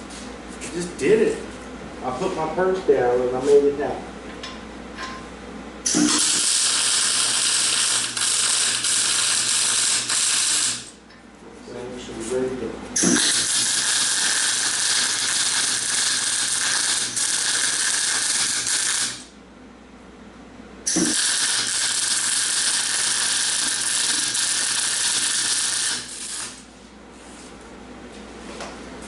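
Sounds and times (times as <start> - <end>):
welding arc strike: 5.9 - 10.9, 13.0 - 19.3, 20.9 - 26.6
welding arc crackling: 5.9 - 11.0, 13.0 - 19.3, 20.9 - 26.7.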